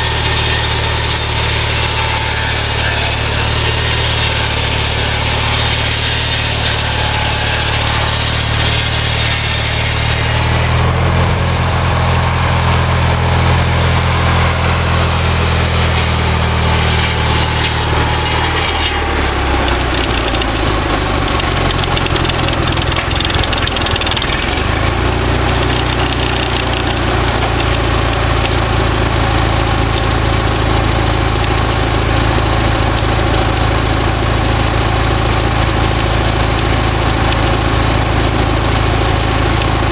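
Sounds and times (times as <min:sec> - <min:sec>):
small engine driving sawmill: 0:00.0 - 0:39.9.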